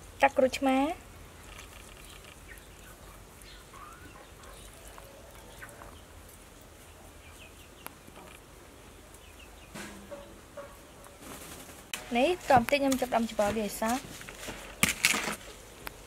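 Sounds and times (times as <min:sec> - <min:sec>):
soft bird calls: 0:01.4 - 0:06.2.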